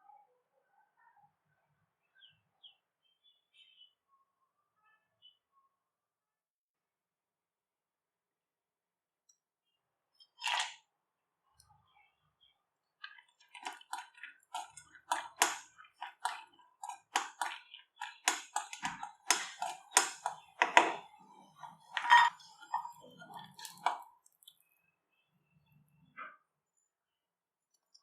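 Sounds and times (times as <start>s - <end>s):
metal spoon scraping metal vessel: 13.5s - 23.9s.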